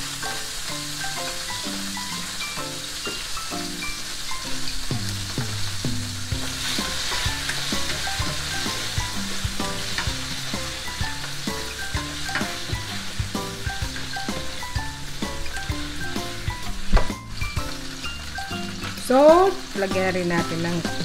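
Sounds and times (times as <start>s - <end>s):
chicken sizzling in hot oil: 0.0s - 21.0s
light plucked background music: 0.0s - 21.0s
spatula stirring in pan: 6.3s - 19.8s.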